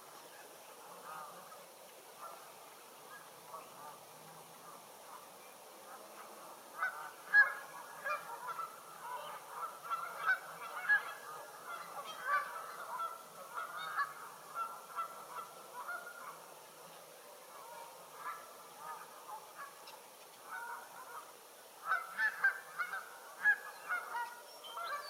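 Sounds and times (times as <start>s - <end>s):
geese honking: 0.8s - 1.6s, 4.6s - 16.5s, 17.5s - 25.0s.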